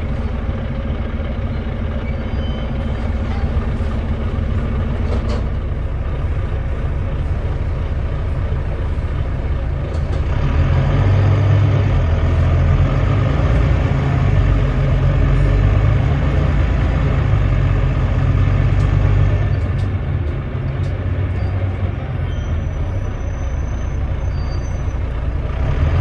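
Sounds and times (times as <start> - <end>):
bus diesel engine running: 0.0 - 26.0.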